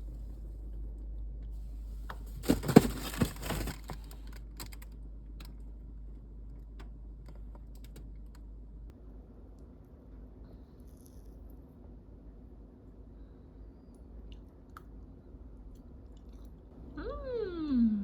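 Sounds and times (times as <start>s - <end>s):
packaging crackling: 2.3s - 4.2s.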